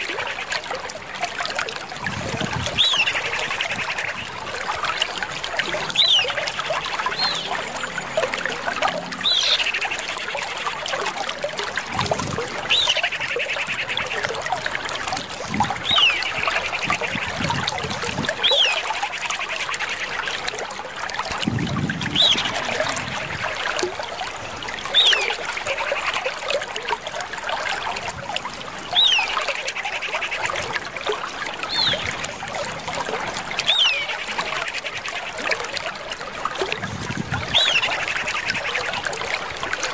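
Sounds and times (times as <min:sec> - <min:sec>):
bird calling with whistle and trill: 0:22.1 - 0:22.6, 0:37.5 - 0:38.6.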